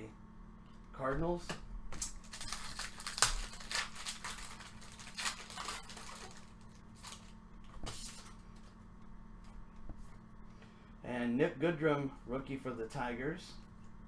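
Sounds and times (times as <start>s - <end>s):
trading cards rustling and clicking: 2.0s - 8.7s.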